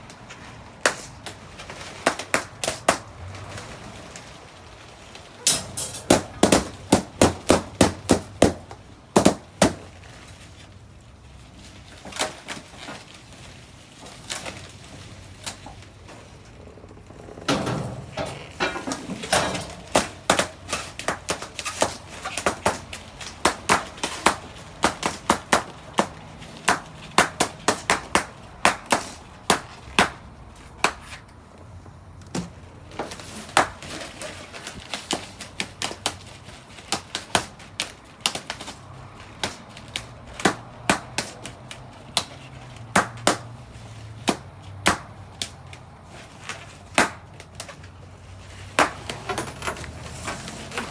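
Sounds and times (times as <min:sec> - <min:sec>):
balloons popping: 0:05.5 - 0:09.8.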